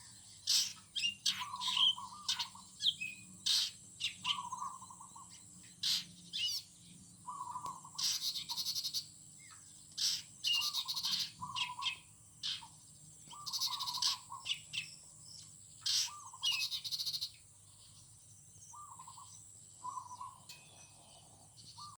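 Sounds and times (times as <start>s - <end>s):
bird chirps and trills: 0.0s - 22.0s
low warbling bird call: 5.9s - 8.8s, 18.7s - 22.0s.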